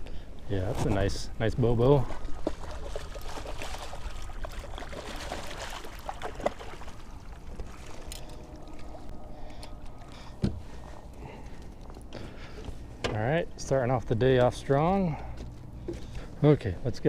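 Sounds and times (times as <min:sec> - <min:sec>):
water splashing and trickling: 0:00.6 - 0:13.0.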